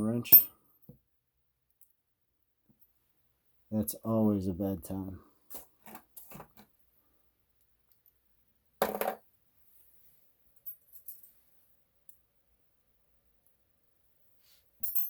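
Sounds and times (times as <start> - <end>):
metal hand tools clinking: 0.2 - 0.5.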